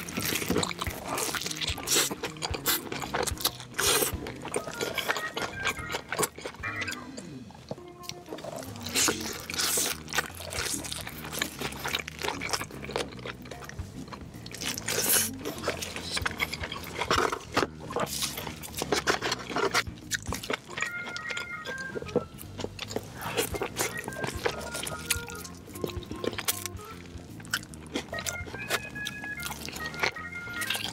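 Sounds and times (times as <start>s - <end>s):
crunching crispy food: 0.0s - 30.9s
soft background music: 0.0s - 30.9s.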